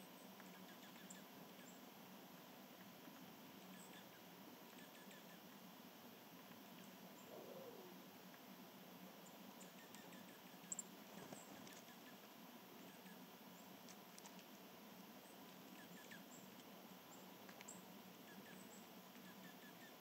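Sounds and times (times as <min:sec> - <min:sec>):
small birds chirping: 0:00.1 - 0:01.9, 0:03.6 - 0:05.6, 0:09.2 - 0:14.4, 0:15.2 - 0:20.0
tiny ticks: 0:09.8 - 0:12.1, 0:13.8 - 0:14.6, 0:17.4 - 0:17.8.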